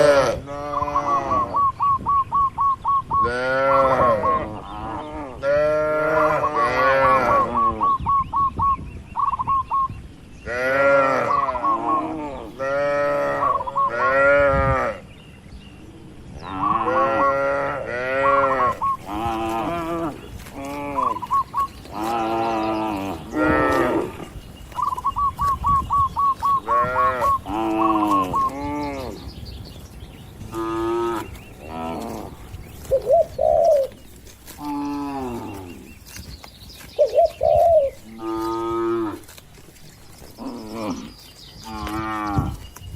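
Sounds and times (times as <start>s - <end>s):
cattle mooing: 3.2s - 7.8s, 16.5s - 24.4s, 26.6s - 29.2s, 30.4s - 32.4s, 34.6s - 35.9s, 38.2s - 39.3s.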